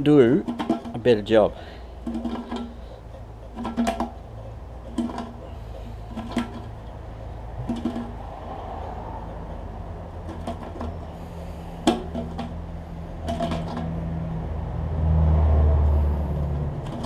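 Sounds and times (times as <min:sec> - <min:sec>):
can opener clicking and scraping: 0:02.0 - 0:06.8, 0:13.2 - 0:14.0, 0:16.8 - 0:17.0.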